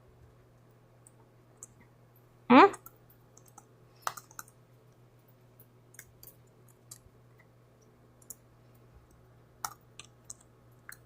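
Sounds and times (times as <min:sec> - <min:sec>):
beak pecking keyboard keys: 0:02.8 - 0:04.6, 0:09.6 - 0:11.0.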